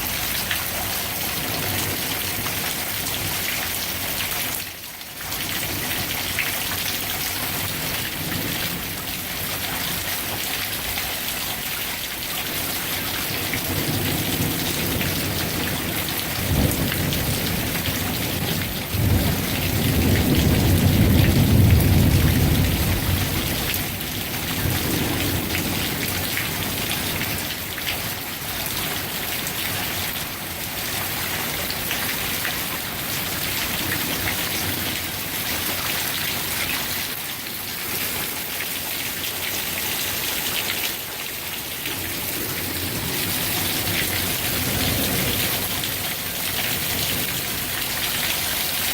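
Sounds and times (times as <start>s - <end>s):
heavy rain: 0.0s - 48.9s
rolling thunder: 13.7s - 27.4s.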